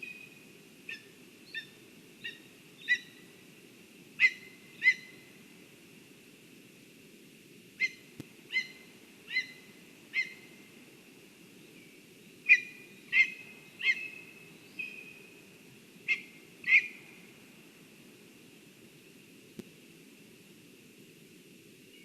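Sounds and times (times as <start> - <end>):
woodpecker calling: 7.8 - 10.4, 12.5 - 14.2, 16.1 - 17.0.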